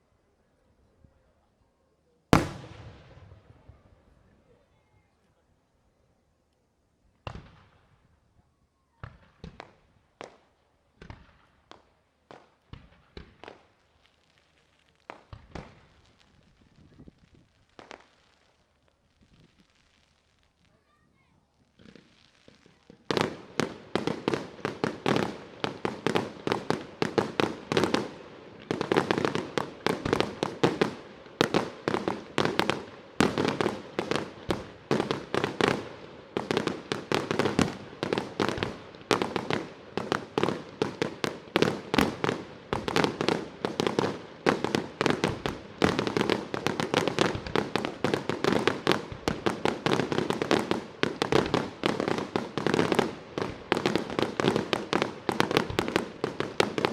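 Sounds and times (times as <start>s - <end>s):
fireworks bursting: 2.3s - 3.9s, 15.0s - 56.9s.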